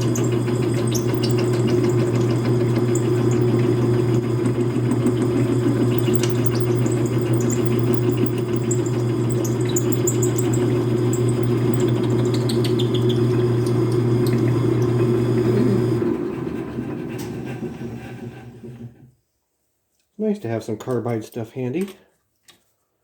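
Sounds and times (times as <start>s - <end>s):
drill bit cutting ticks: 0.0s - 15.5s
metal lathe humming: 0.0s - 19.0s.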